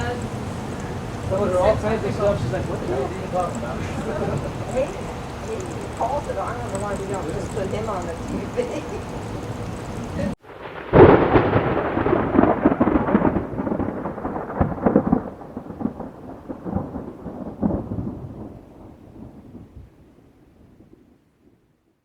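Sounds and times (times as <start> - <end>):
thunder clap and rumble: 0.0 - 21.6.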